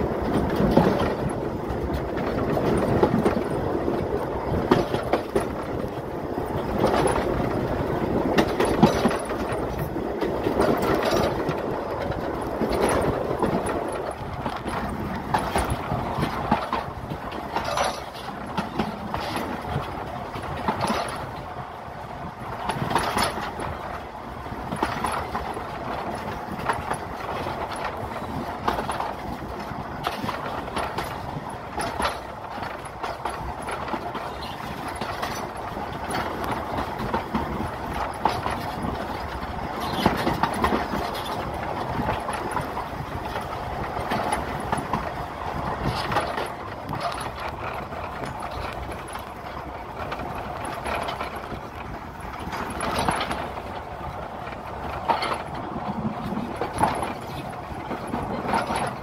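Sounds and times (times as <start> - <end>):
train wheels knocking on rails: 0.0 - 21.5
locomotive engine running: 0.0 - 59.0.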